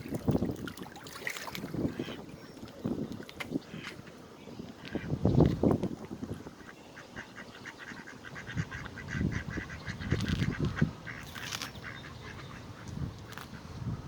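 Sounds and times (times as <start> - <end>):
ducks quacking: 1.8 - 2.3, 4.8 - 5.2, 6.6 - 13.7.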